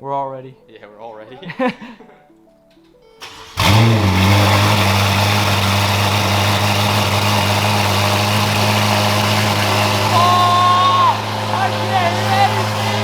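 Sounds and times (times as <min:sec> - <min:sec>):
car engine starting and idling: 0:03.2 - 0:13.0.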